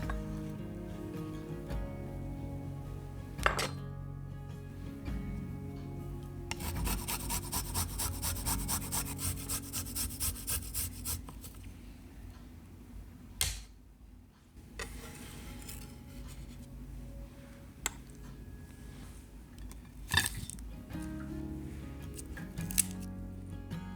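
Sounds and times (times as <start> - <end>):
rasping grating strokes: 6.5 - 11.6
soft rubbing: 6.5 - 12.0.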